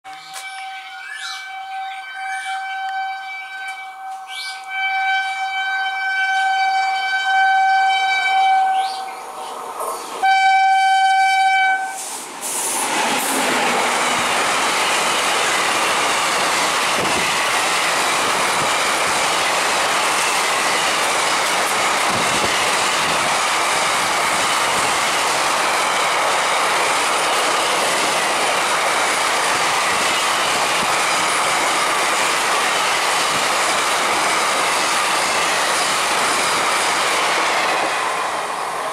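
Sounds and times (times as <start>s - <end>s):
locomotive horn blasts: 0.1s - 9.1s, 10.2s - 12.1s.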